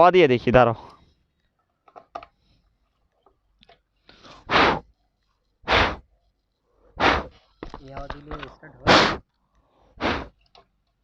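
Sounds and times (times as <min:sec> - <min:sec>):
hard blows of breath: 0:04.2 - 0:04.9, 0:05.6 - 0:06.1, 0:06.8 - 0:07.4, 0:08.9 - 0:09.2, 0:09.8 - 0:10.4.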